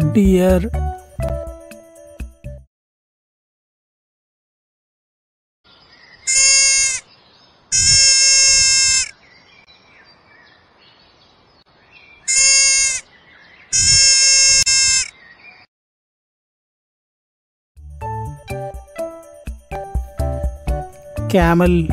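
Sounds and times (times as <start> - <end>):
faint outdoor background: 0.0 - 2.7, 5.6 - 15.7, 17.8 - 21.9
animal bleating: 6.3 - 7.0, 7.7 - 9.1, 12.3 - 13.0, 13.7 - 15.1.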